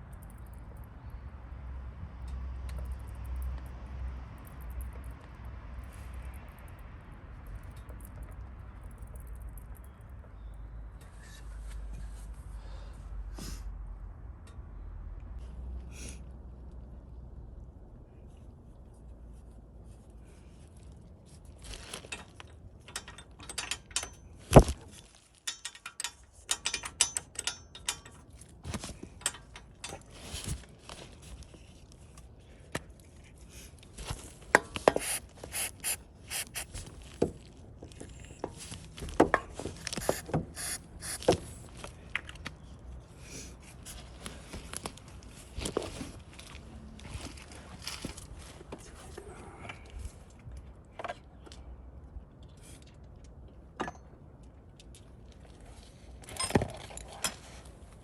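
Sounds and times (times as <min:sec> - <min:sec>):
hard objects clicking and scraping: 0:34.8 - 0:36.8, 0:39.8 - 0:41.4.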